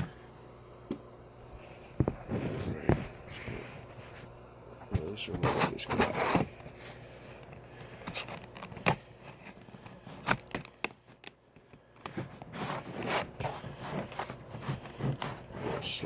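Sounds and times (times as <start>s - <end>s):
packaging clicks and crackles: 5.6s - 15.6s
blade slicing packaging: 8.0s - 11.4s.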